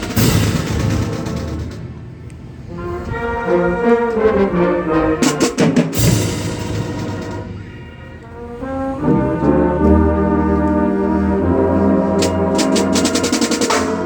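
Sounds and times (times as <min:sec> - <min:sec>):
cymbal crashes: 0:00.0 - 0:02.1, 0:06.0 - 0:07.8
marching band brass chords: 0:00.0 - 0:14.0.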